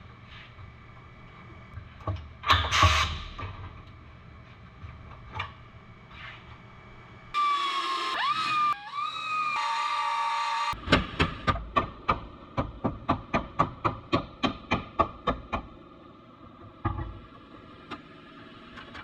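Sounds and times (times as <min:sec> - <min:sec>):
power tool whining: 0:07.4 - 0:10.8.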